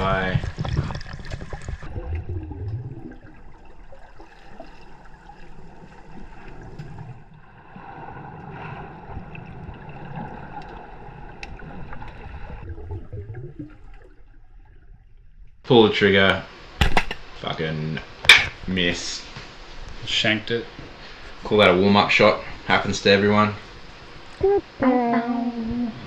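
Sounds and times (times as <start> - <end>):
muffled underwater gurgling: 0.0 - 14.1, 19.9 - 26.0
low surges of water: 0.0 - 26.0.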